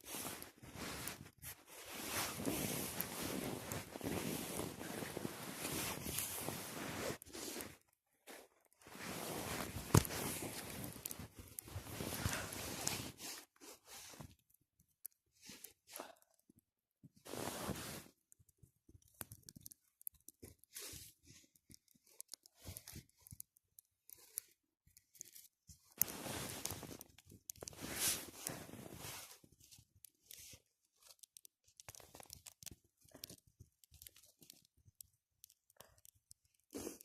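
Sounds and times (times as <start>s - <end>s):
crunching and rustling: 0.0s - 14.2s, 24.1s - 34.7s.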